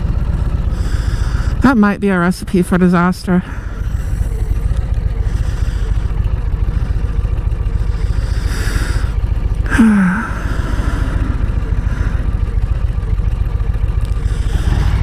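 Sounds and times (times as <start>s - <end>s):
motorcycle engine running: 0.0s - 15.0s
sighing voice: 2.7s - 13.0s.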